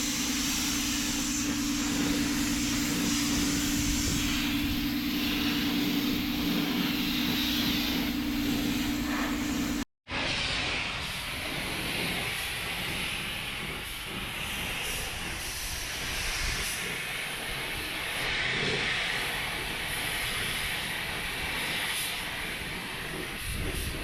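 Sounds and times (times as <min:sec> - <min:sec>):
steady hissing noise: 0:00.0 - 0:09.8.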